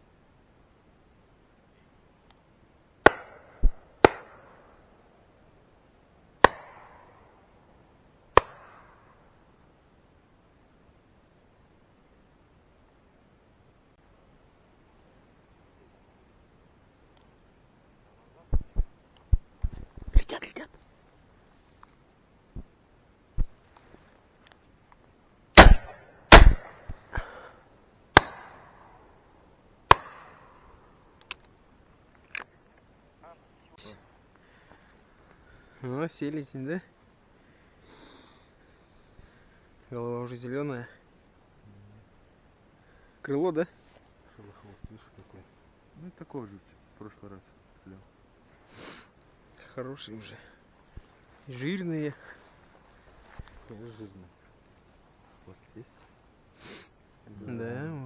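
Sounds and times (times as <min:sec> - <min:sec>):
shotgun shots with echo: 0:03.0 - 0:04.8, 0:06.4 - 0:07.4, 0:08.4 - 0:09.1, 0:25.6 - 0:27.4, 0:28.2 - 0:29.0, 0:29.9 - 0:30.6.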